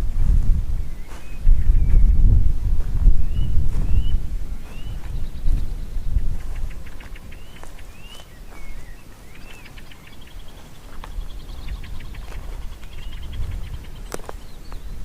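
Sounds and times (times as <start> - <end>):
steady low rumble: 0.0 - 15.0
birds whistling: 0.8 - 2.2, 3.2 - 15.0
bird trilling: 3.2 - 15.0.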